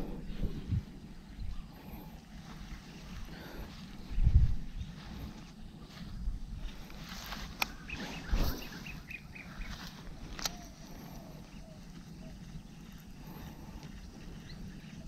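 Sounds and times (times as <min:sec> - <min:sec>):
outdoor background noise: 0:00.0 - 0:15.0
bird chirping: 0:06.8 - 0:15.0.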